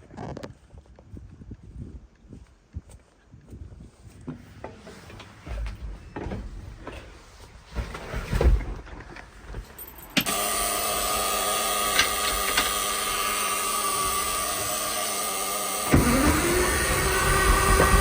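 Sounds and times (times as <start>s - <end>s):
knocks and clunks: 4.3s - 11.2s, 15.7s - 18.0s
diesel engine running: 10.2s - 18.0s
starter click: 11.8s - 14.5s.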